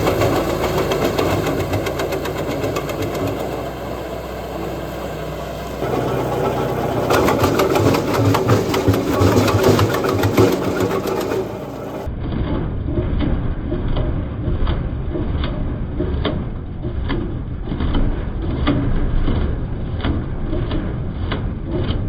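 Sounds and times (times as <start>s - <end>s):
wood chipper engine droning: 0.0s - 22.0s
sharp knocks: 5.8s - 12.1s.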